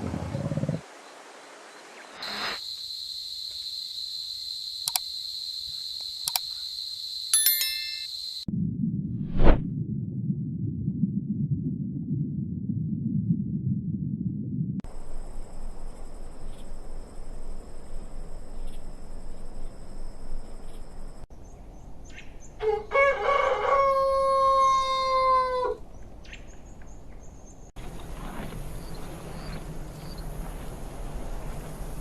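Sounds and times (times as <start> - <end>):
rooster crowing: 22.6 - 25.8.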